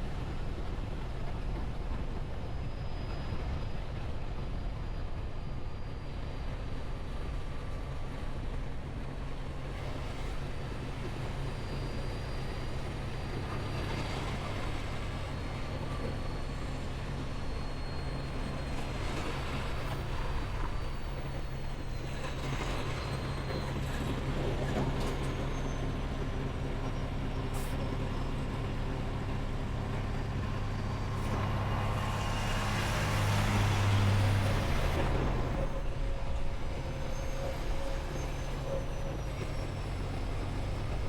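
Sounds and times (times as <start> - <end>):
truck engine rumbling: 8.9 - 41.0
faint high whine: 9.8 - 24.0.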